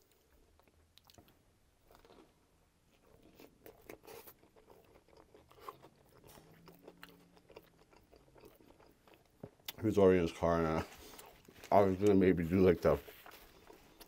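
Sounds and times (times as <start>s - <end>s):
chewing with crunches and wet clicks: 0.0s - 14.0s.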